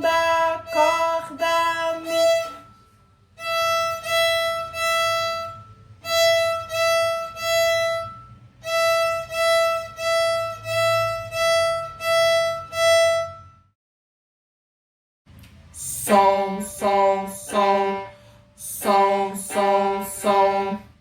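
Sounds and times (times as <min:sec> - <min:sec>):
violin bowed single note: 0:00.0 - 0:13.6, 0:16.1 - 0:20.8.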